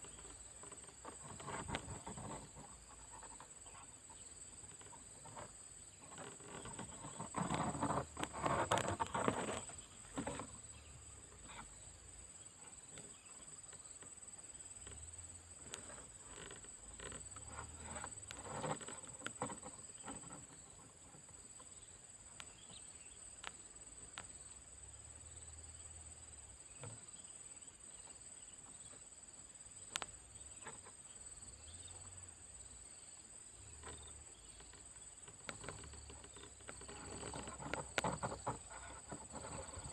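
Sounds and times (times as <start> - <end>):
rustling: 0.0 - 11.8, 33.6 - 39.9
high insect hum: 0.0 - 39.9.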